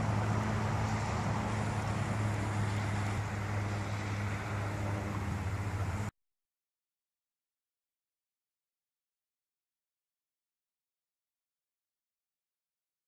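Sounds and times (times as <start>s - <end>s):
engine humming: 0.0s - 6.1s.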